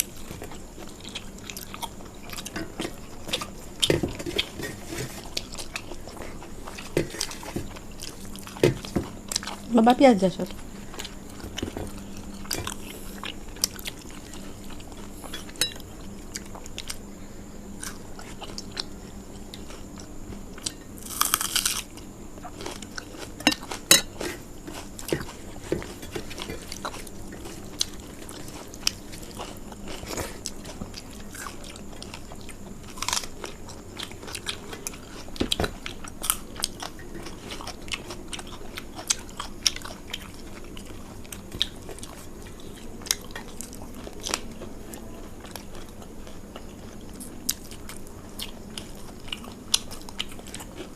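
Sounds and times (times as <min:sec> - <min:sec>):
crunching fried food: 0:17.8 - 0:50.9.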